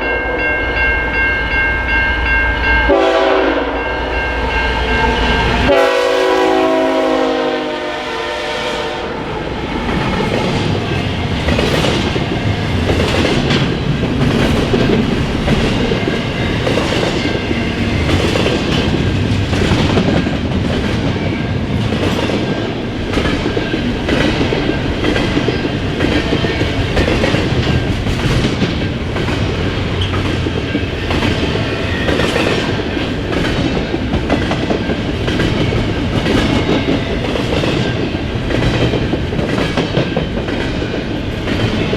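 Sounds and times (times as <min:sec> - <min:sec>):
train rolling rumble: 0:00.0 - 0:41.9
freight train wheels clattering: 0:09.4 - 0:41.9.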